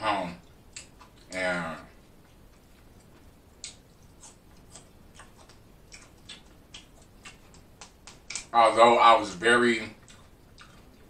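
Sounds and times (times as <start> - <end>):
chewing mouth clicks and lip smacks: 0.7 - 1.4, 2.2 - 8.5, 10.0 - 11.0.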